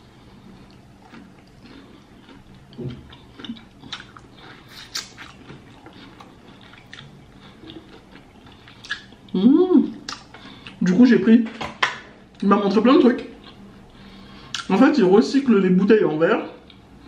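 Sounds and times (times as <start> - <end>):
crunchy chewing: 0.1 - 9.4
wet mouth clicks: 1.1 - 9.2, 10.0 - 10.8.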